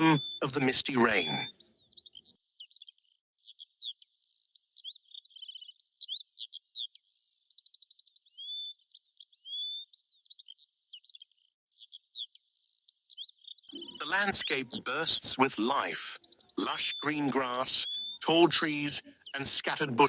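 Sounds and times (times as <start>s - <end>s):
songbirds singing: 11.8s - 20.0s.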